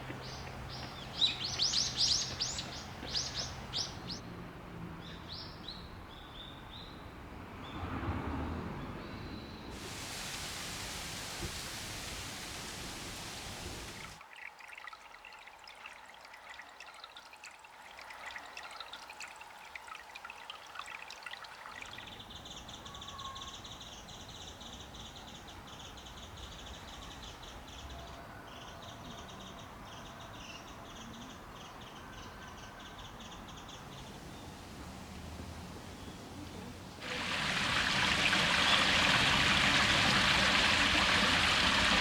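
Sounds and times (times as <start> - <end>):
running water: 0.0 - 4.2, 9.7 - 23.8, 33.5 - 42.0
water trickling and dripping: 0.0 - 4.3, 9.7 - 27.8, 32.6 - 42.0.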